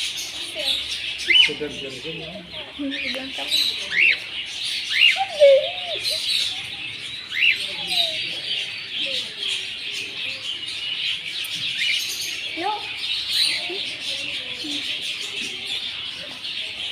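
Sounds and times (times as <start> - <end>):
small birds chirping: 0.0 - 16.9
swooping bird calls: 0.0 - 16.9
whistled bird notes: 2.9 - 9.3.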